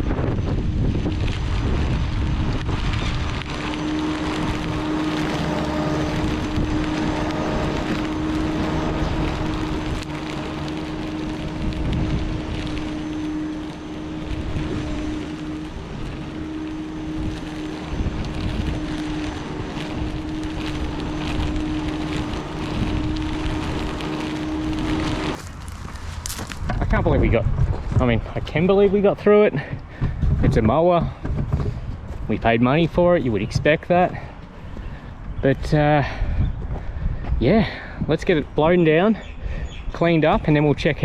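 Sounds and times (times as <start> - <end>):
electric lawn mower cutting grass: 0.0 - 26.8.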